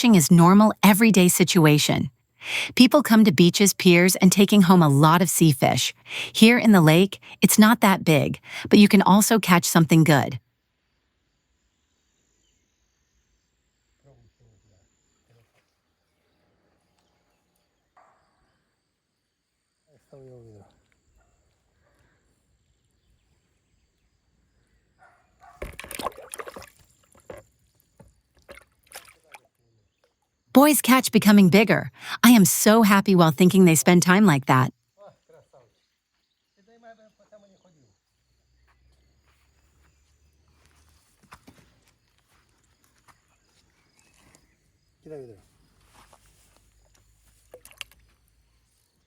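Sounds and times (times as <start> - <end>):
water splashing: 25.7 - 26.8, 28.4 - 29.4.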